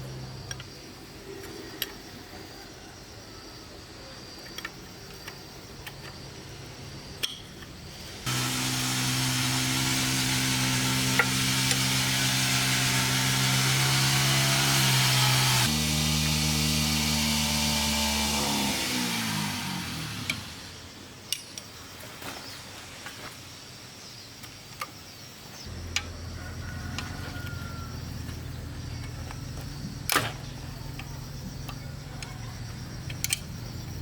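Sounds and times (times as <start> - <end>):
powered machine humming and hissing: 7.9 - 20.9.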